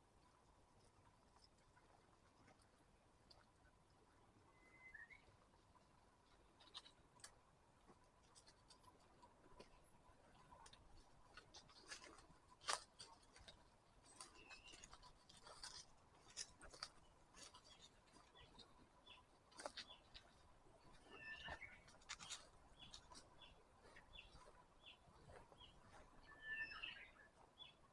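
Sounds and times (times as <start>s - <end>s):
faint bird chirp: 4.4s - 5.6s, 14.0s - 15.2s, 17.0s - 27.9s
footsteps on dry leaves and twigs: 11.3s - 27.2s.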